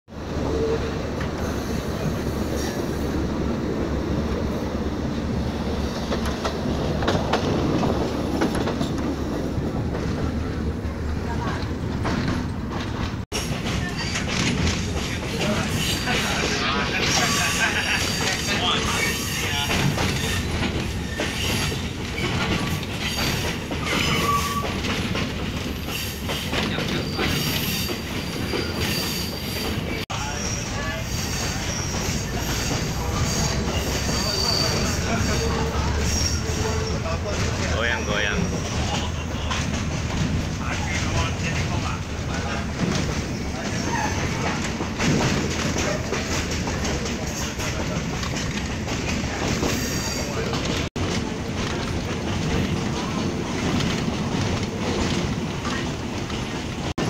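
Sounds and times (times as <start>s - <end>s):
train rumbling and rattling: 0.1s - 57.0s
wheels clicking over rail joints: 5.6s - 30.0s, 31.5s - 57.0s
thin high wheel squeal: 17.0s - 24.9s, 25.8s - 37.2s, 49.6s - 50.5s.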